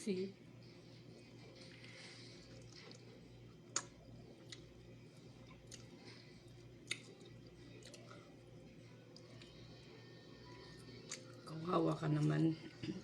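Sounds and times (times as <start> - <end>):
quiet chewing: 1.2 - 9.8, 10.4 - 11.4.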